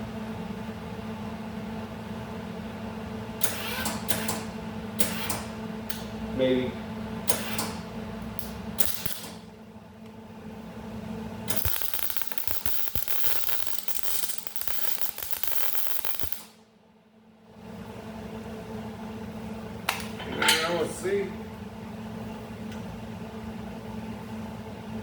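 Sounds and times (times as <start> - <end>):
steady low hum: 4.1 - 25.0
arc welder crackling and sizzling: 7.3 - 9.6, 11.3 - 16.6.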